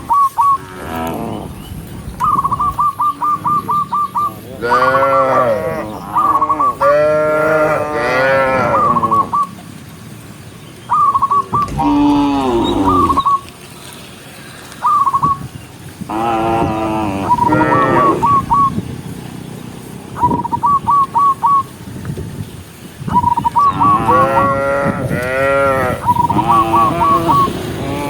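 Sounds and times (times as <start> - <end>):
cattle mooing: 4.6 - 6.0, 6.8 - 9.2, 11.6 - 13.3, 16.1 - 18.2, 23.8 - 28.0.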